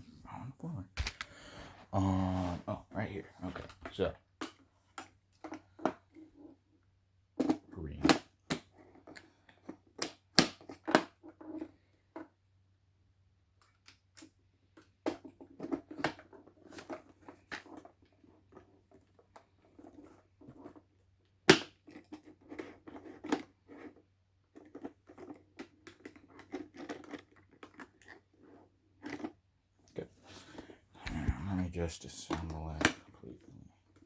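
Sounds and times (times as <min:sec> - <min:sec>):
parts clicking and knocking: 0:01.0 - 0:01.3.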